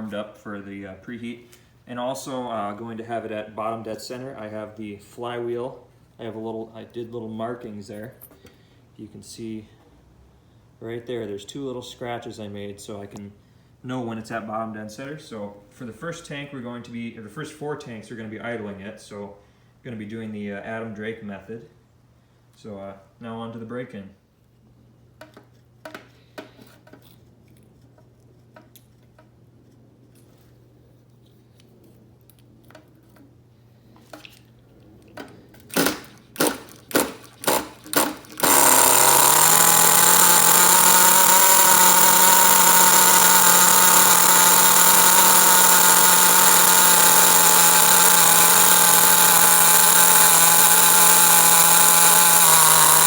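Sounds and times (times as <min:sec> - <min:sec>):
engine cranking bursts: 0:35.8 - 0:53.0
model engine idling loudly: 0:38.4 - 0:53.0.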